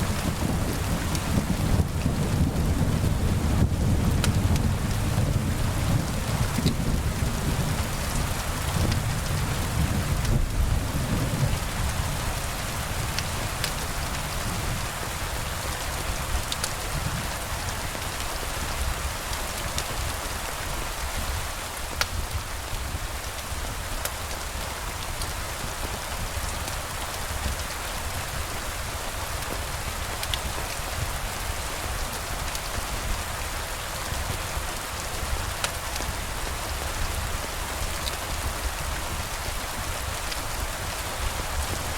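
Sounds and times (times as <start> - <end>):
thunder rumble: 0.0 - 15.0
steady rain: 0.0 - 41.9.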